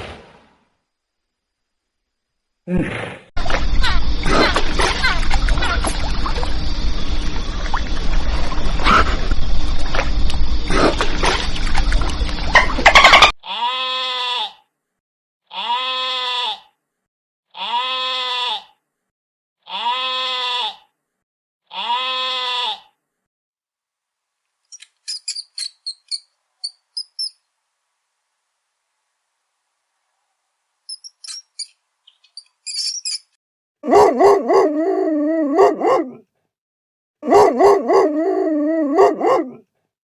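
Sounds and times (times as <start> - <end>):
goat bleating: 13.4 - 14.6, 15.5 - 16.7, 17.6 - 18.8, 19.7 - 20.9, 21.7 - 22.9
short high chirps: 30.9 - 33.4.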